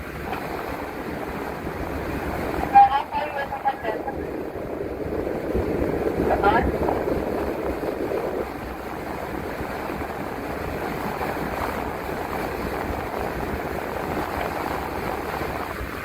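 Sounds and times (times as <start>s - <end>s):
bus engine rumble: 2.6s - 4.8s.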